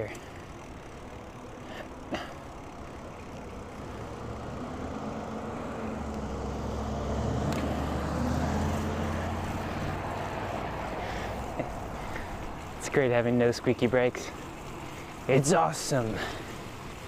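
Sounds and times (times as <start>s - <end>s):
car driving past: 3.4s - 12.7s.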